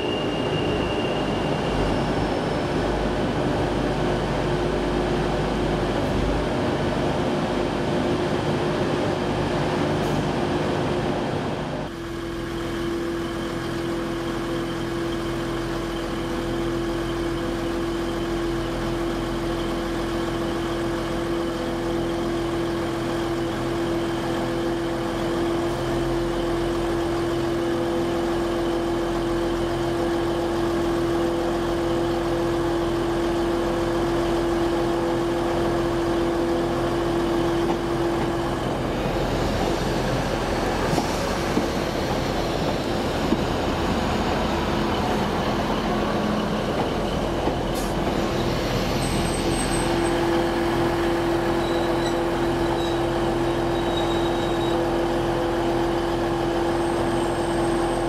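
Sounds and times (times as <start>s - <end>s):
train humming: 0.0s - 19.6s, 23.0s - 58.0s.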